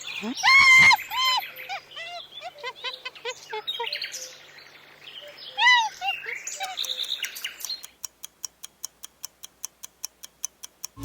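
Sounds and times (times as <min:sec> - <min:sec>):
chimpanzee hoots and cries: 0:00.0 - 0:04.1, 0:05.5 - 0:06.9
countdown timer ticking: 0:07.7 - 0:11.0.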